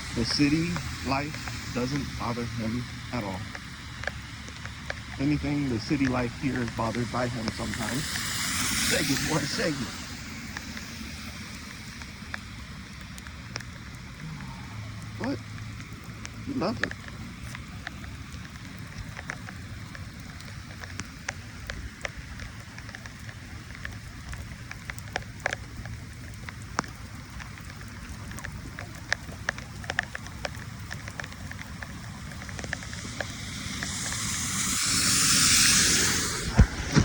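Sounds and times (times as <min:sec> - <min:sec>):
low steady rumble: 0:00.0 - 0:37.0
raindrops ticking close by: 0:00.0 - 0:37.0
steady rain: 0:00.0 - 0:37.0
loud hiss: 0:32.8 - 0:37.0.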